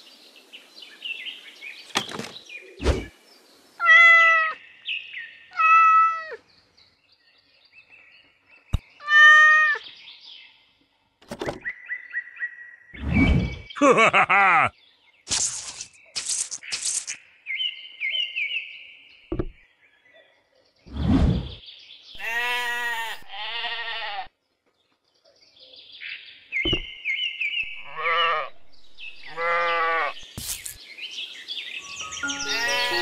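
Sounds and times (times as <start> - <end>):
sheep bleating: 22.2 - 24.3, 27.8 - 28.6, 29.2 - 30.2, 32.4 - 33.0.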